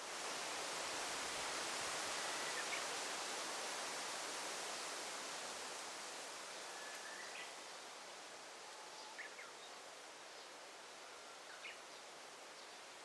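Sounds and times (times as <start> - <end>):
rustling leaves hiss: 0.0 - 13.0
faint bird chirps: 8.6 - 12.8.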